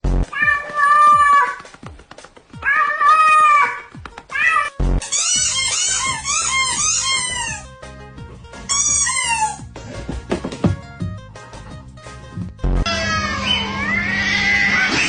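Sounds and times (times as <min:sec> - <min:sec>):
music: 0:00.0 - 0:12.9
cat meowing: 0:00.3 - 0:01.6, 0:02.6 - 0:07.6, 0:12.9 - 0:15.0.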